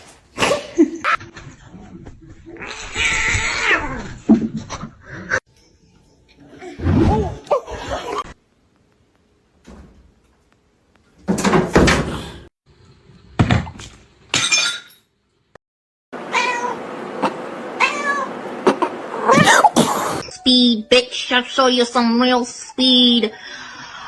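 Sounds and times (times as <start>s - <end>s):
cats meowing: 6.3s - 8.3s.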